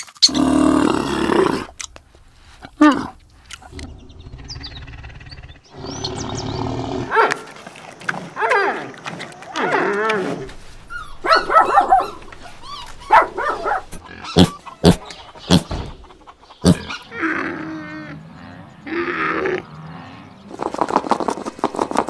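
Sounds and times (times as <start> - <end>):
animal whining: 0.2 - 7.5, 8.4 - 15.7.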